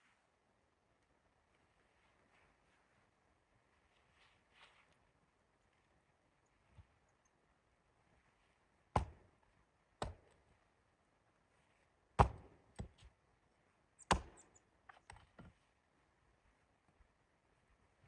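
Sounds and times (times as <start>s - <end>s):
chopping on wood: 9.0s - 9.4s, 10.0s - 10.4s, 12.2s - 13.0s, 14.1s - 14.4s.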